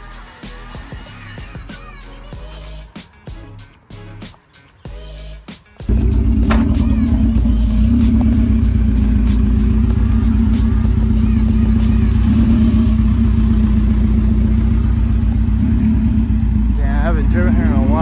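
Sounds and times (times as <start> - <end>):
car engine idling: 5.9 - 18.0.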